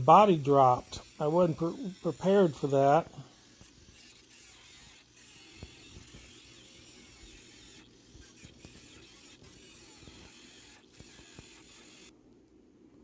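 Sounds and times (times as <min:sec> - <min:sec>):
low steady hiss: 0:00.0 - 0:03.4.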